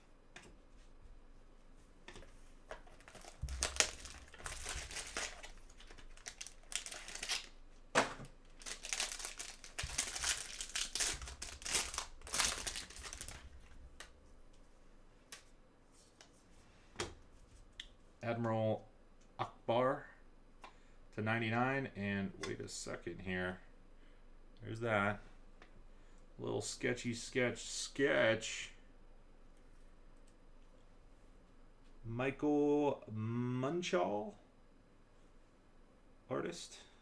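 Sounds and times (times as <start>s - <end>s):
plastic packaging crinkling: 2.7s - 7.6s, 8.2s - 14.2s
plastic tearing: 2.8s - 14.1s.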